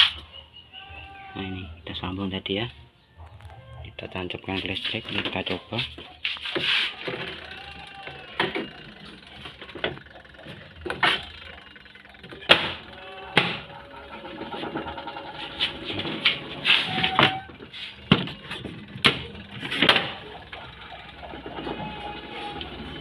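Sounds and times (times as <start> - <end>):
sharp clicks and knocks: 18.0 - 20.8.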